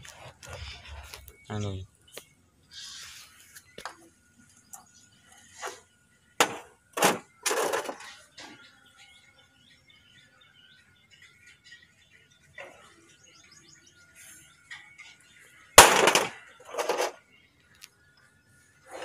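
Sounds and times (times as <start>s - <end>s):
metal scraping rattle: 6.4s - 8.2s, 15.8s - 17.2s.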